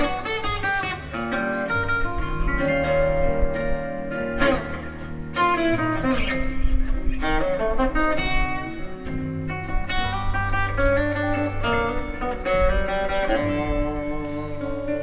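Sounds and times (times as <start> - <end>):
guitar melody: 0.0 - 15.0.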